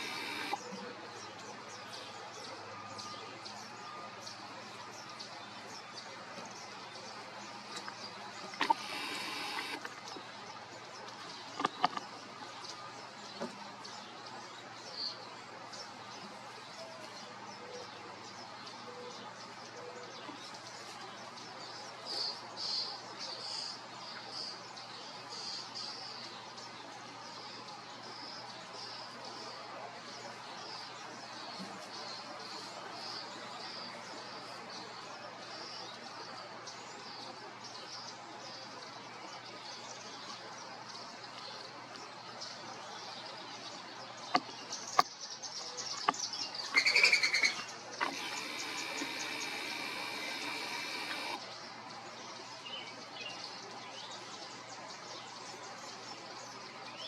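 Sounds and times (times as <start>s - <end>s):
bird pulsing call: 0.0s - 0.6s, 8.5s - 9.9s, 46.7s - 51.4s
sharp clicks: 0.0s - 0.6s, 8.5s - 9.9s, 11.6s - 12.0s, 48.0s - 51.4s
bird chirping: 0.0s - 14.1s, 39.3s - 51.8s
steady background hiss: 0.0s - 19.8s, 20.4s - 57.0s.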